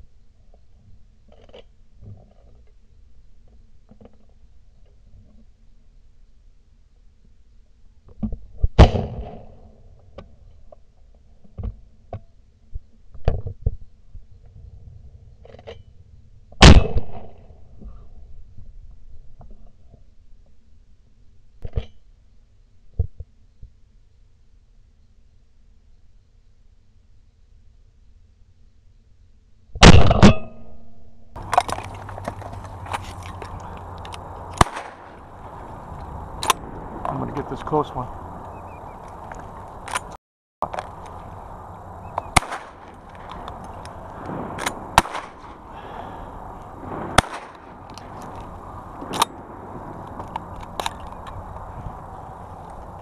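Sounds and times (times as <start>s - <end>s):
shotgun shots with echo: 16.6s - 17.4s, 29.8s - 30.4s, 34.6s - 35.2s, 42.3s - 43.3s, 43.9s - 47.8s
steady rumble: 31.2s - 53.0s
scattered clicks: 31.4s - 41.4s, 42.0s - 45.6s
ringing after gunshots: 34.6s - 35.2s, 42.1s - 43.2s, 44.0s - 47.8s.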